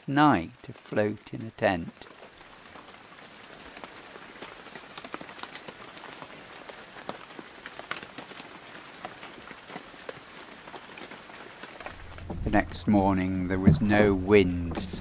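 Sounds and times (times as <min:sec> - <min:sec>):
rain drops on cloth tent: 0:00.0 - 0:15.0.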